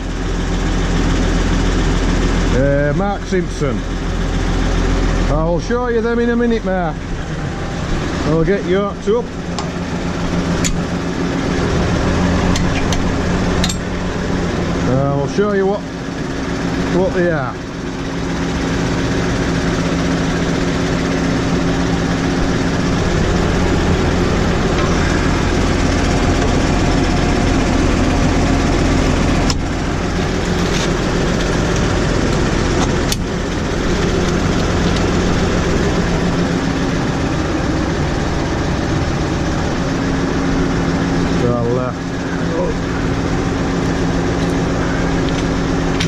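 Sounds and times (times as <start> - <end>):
tractor engine running: 0.0 - 46.0.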